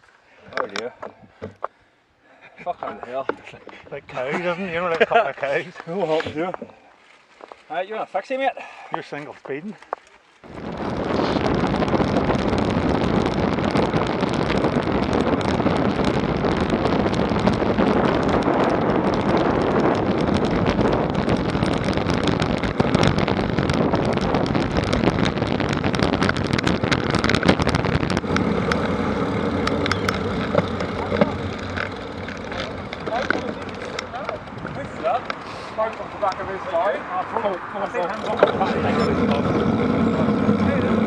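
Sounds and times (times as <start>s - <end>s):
bicycle rattling on rough ground: 9.5s - 41.0s
wind noise on microphone: 10.4s - 41.0s.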